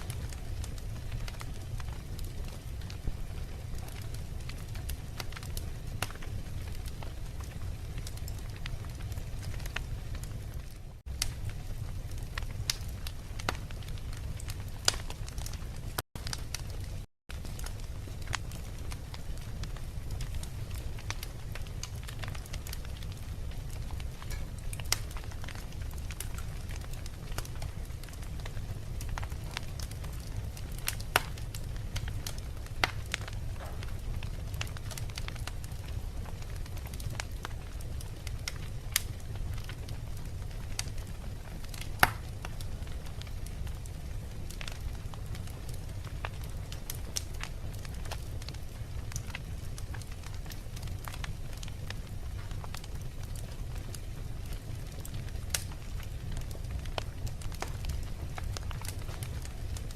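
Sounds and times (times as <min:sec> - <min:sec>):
fire crackling and popping: 0:00.0 - 0:59.9
low rumble of flame: 0:00.0 - 0:59.9.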